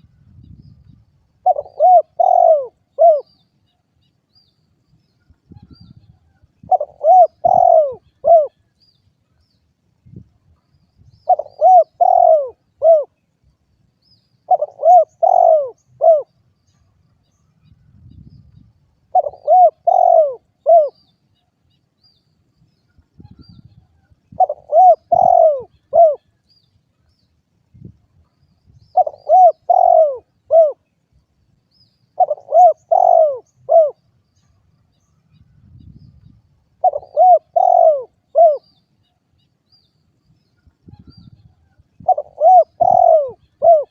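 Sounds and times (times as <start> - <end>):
dove cooing: 1.4 - 3.3, 6.6 - 8.6, 11.2 - 13.2, 14.4 - 16.4, 19.1 - 21.0, 24.3 - 26.3, 28.9 - 30.9, 32.1 - 34.0, 36.8 - 38.8, 40.9 - 43.9.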